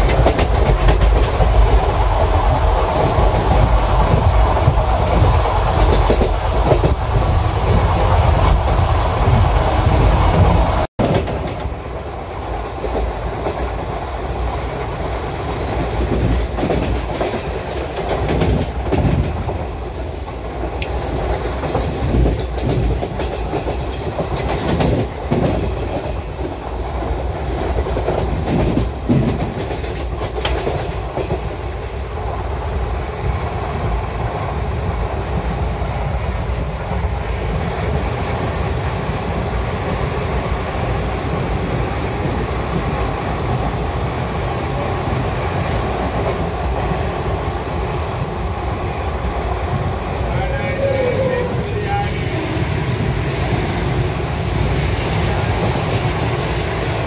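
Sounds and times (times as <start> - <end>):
train wheels clattering over rail joints: 0.0 - 2.0, 11.0 - 13.7, 15.8 - 26.6, 27.4 - 31.6
train running noise: 0.0 - 57.0.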